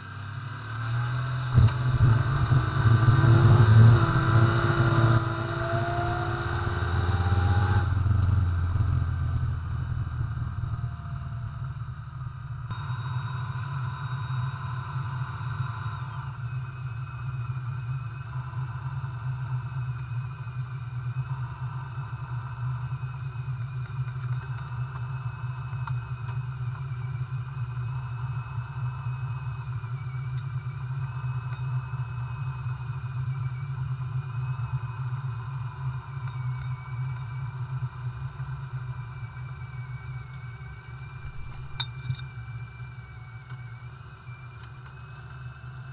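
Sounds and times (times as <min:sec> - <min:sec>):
thin engine whine: 0:00.0 - 0:45.9
car engine rumbling: 0:00.2 - 0:26.8, 0:39.8 - 0:44.9.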